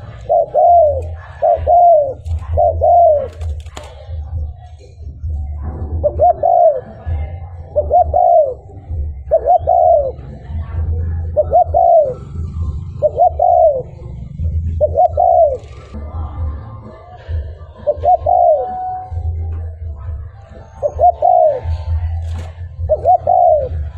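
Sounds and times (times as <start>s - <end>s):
dove cooing: 0.0s - 16.0s, 16.6s - 23.9s
steady low rumble: 0.0s - 17.8s.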